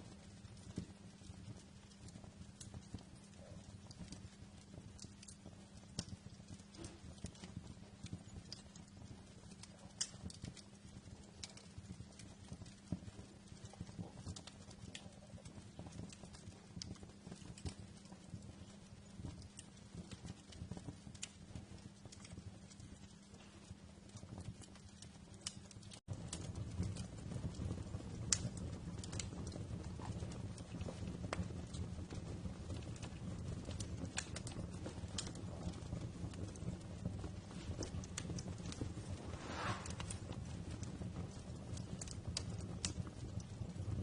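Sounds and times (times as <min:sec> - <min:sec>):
wood fire crackling: 0:00.0 - 0:44.0.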